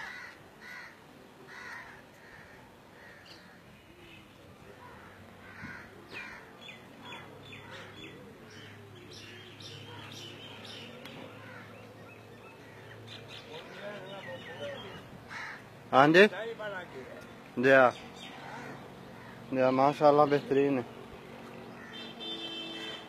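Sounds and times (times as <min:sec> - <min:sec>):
hoarse bird caws: 0:00.0 - 0:03.7, 0:04.8 - 0:08.8, 0:11.3 - 0:11.9, 0:14.8 - 0:15.7, 0:18.2 - 0:19.6, 0:21.7 - 0:23.0.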